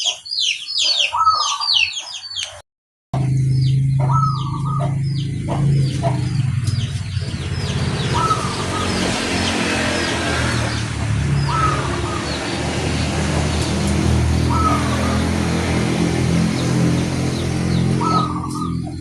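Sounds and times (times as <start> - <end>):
small birds chirping: 0.0 - 2.6, 3.2 - 19.0
dove cooing: 1.0 - 1.8, 4.0 - 5.0, 8.0 - 10.8, 11.4 - 16.0, 18.0 - 19.0.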